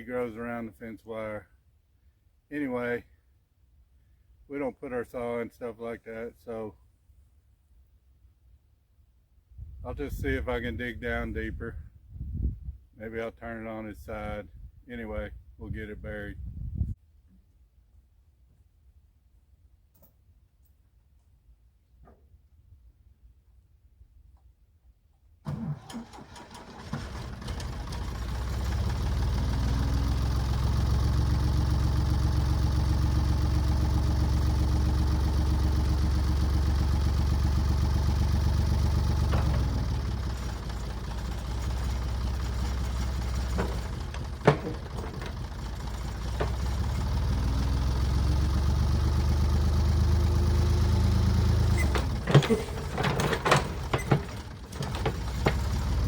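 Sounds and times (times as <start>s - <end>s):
backhoe engine revving: 25.5s - 56.0s
metallic clanks: 39.0s - 47.0s, 51.8s - 56.0s.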